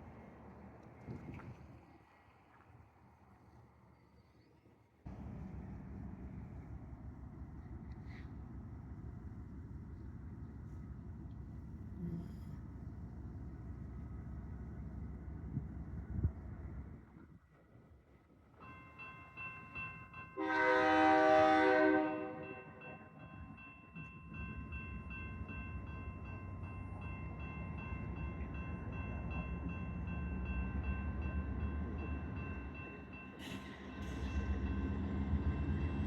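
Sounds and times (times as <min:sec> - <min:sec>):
train rumbling: 0:05.1 - 0:18.6, 0:20.4 - 0:36.0
locomotive horn blast: 0:20.4 - 0:22.8.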